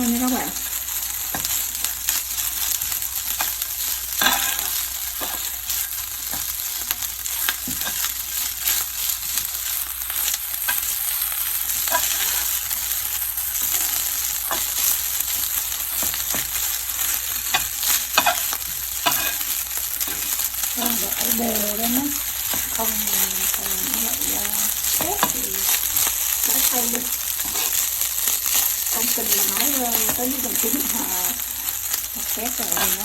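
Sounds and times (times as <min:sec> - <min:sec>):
rice sizzling in a hot pan: 0:00.0 - 0:33.0
spatula scraping and tapping pan: 0:00.6 - 0:09.5, 0:11.8 - 0:12.6, 0:13.6 - 0:23.6, 0:27.0 - 0:33.0.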